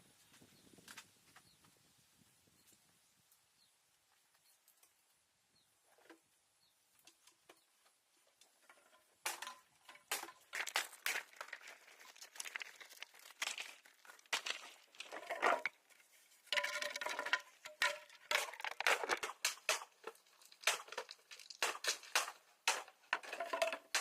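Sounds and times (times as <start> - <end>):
sharp clicks and crackles: 17.2 - 24.0.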